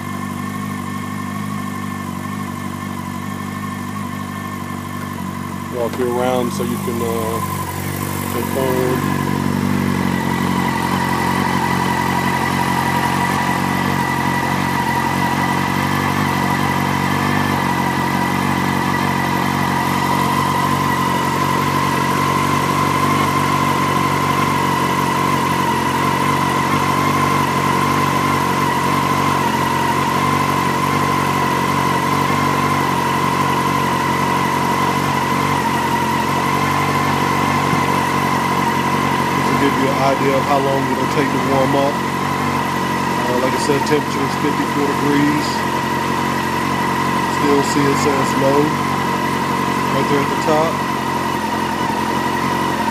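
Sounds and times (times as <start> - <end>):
motorcycle engine idling: 0.0 - 52.9
steady high whine: 0.0 - 52.9.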